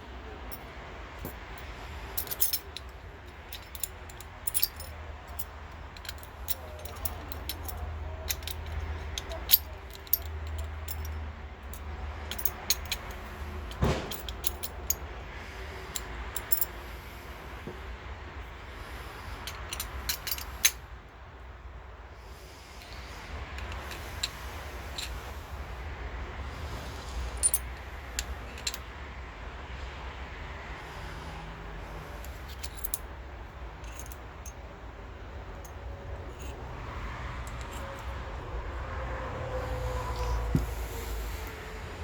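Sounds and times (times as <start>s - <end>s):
metal parts clinking and knocking: 0.4s - 15.2s, 15.8s - 17.0s, 19.4s - 20.8s, 22.8s - 25.4s, 27.0s - 28.9s, 32.1s - 34.8s, 35.4s - 38.4s, 39.5s - 41.6s.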